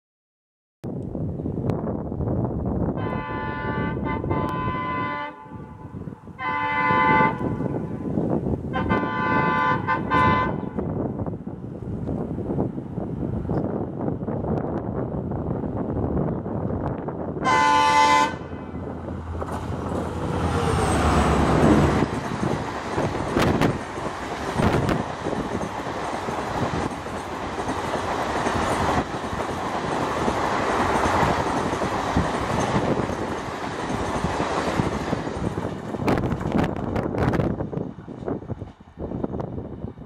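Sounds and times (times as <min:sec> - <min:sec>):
diesel locomotive passing: 0:01.4 - 0:40.0
locomotive horn blast: 0:03.0 - 0:08.0, 0:08.7 - 0:10.8, 0:17.4 - 0:18.8
wheels clattering over rail joints: 0:19.4 - 0:37.0.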